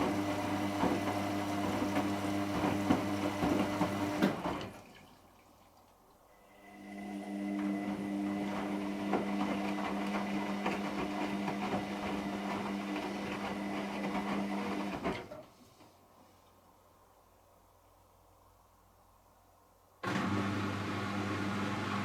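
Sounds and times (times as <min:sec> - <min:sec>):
washing machine motor hum: 0:00.0 - 0:04.7.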